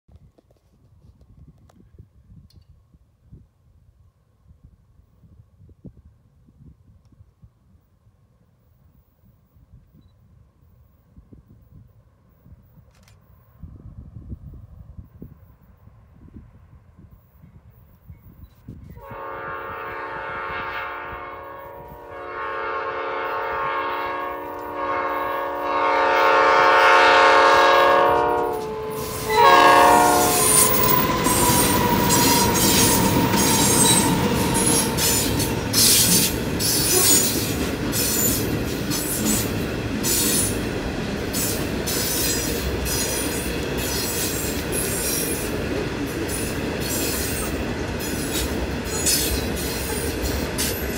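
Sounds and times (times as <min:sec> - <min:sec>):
train rumbling past: 0:18.9 - 0:50.9
locomotive air horn blasts: 0:19.0 - 0:37.3
wheels clacking over rail joints: 0:30.2 - 0:50.9
wheel squeal: 0:30.5 - 0:37.4.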